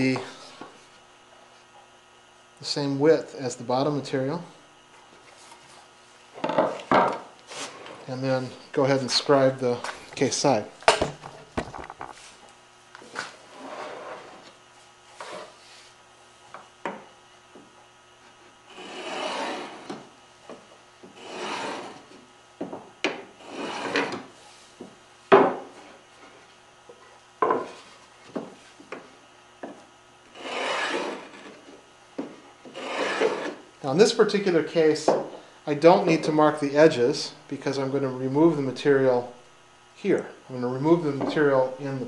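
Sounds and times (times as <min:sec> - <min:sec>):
marking gauge scraping wood: 0:15.2 - 0:15.6, 0:18.7 - 0:20.0, 0:21.1 - 0:22.2, 0:23.4 - 0:24.2, 0:30.3 - 0:31.7, 0:32.6 - 0:33.6.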